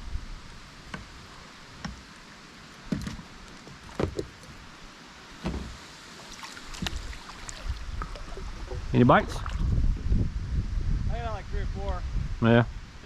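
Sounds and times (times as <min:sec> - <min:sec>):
water noise: 0:00.0 - 0:11.0
kayak knocks and creaks: 0:01.8 - 0:02.1, 0:02.8 - 0:04.6, 0:05.4 - 0:05.8, 0:06.7 - 0:07.1, 0:07.9 - 0:09.7
wind buffeting microphone: 0:06.8 - 0:13.0.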